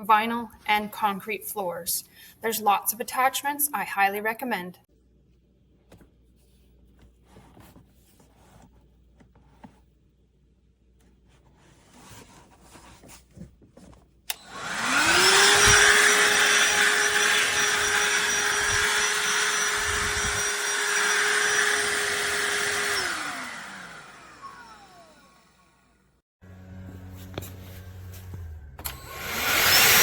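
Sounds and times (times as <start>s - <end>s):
handheld vacuum motor whine: 14.3s - 25.9s, 28.8s - 30.0s.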